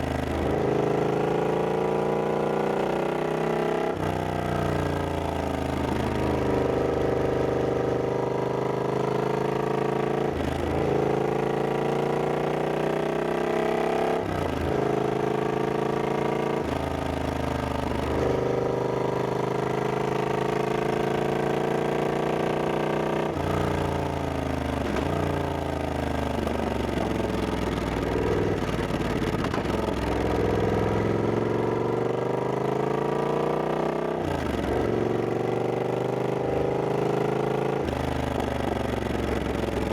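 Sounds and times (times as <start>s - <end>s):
motorcycle engine revving: 13.1s - 39.9s.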